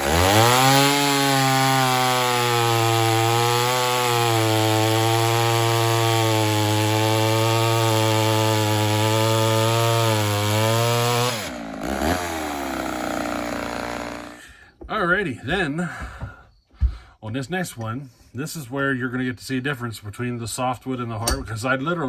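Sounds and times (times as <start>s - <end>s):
chainsaw cutting log: 0.0s - 14.4s.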